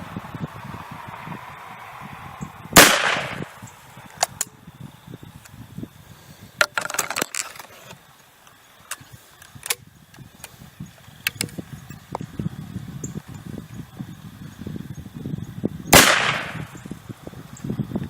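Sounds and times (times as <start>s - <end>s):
shotgun shot: 2.8s - 3.5s, 15.9s - 16.7s.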